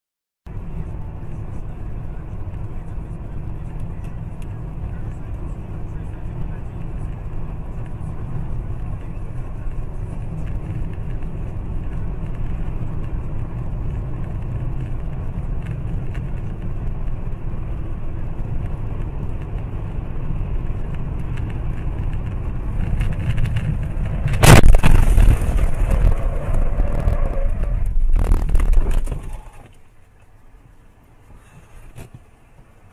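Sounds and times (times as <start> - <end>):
vehicle road and engine noise: 0.5 - 32.9
metal crunching and scraping: 22.7 - 29.6
loud car crash impact: 24.3 - 29.3.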